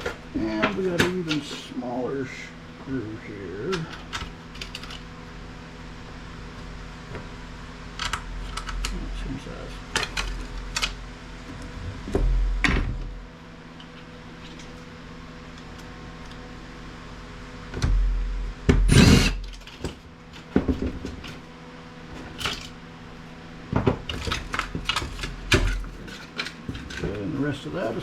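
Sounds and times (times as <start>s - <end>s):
metal parts clattering: 24.1s - 27.3s.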